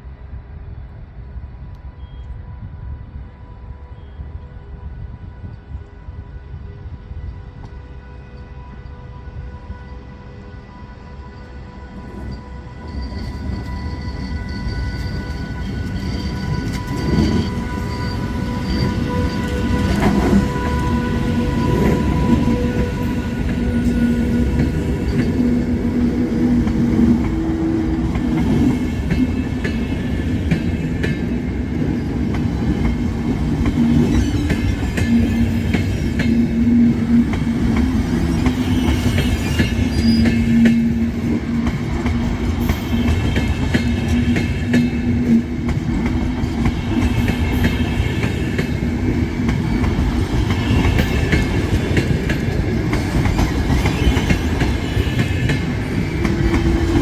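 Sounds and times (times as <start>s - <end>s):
train wheels rumbling: 6.7s - 57.0s.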